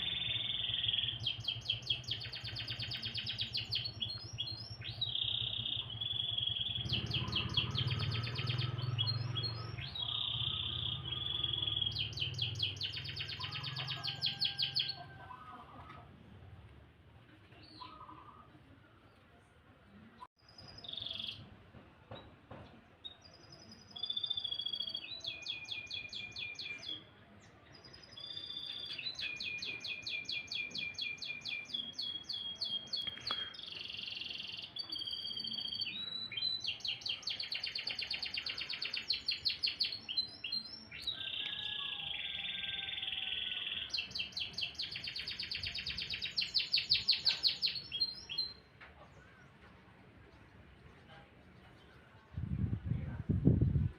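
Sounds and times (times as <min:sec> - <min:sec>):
canary singing trills: 0:00.0 - 0:16.0, 0:20.4 - 0:21.4, 0:23.1 - 0:27.1, 0:27.7 - 0:48.7.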